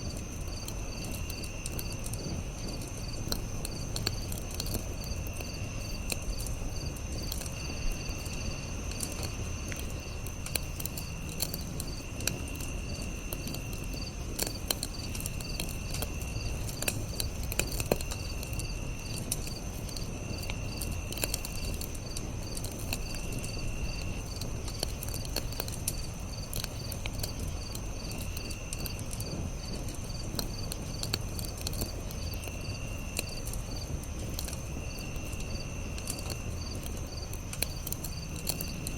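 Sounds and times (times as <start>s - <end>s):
campfire crackling: 0.0s - 38.9s
low insect trill: 0.0s - 38.9s
night insects chirping: 0.0s - 38.9s.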